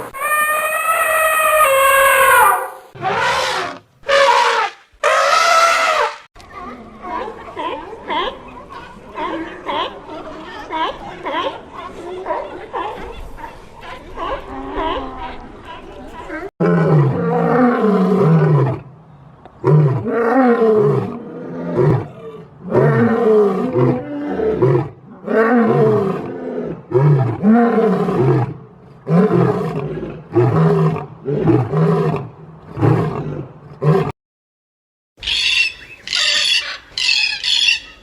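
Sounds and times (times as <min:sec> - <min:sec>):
big cat roaring: 0:16.6 - 0:18.9, 0:19.6 - 0:34.1.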